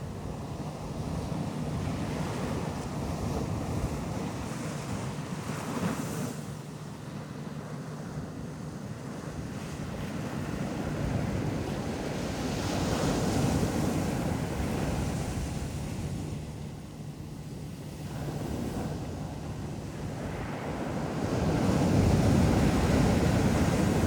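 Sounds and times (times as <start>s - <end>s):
ocean waves washing onto beach: 17.4s - 24.0s.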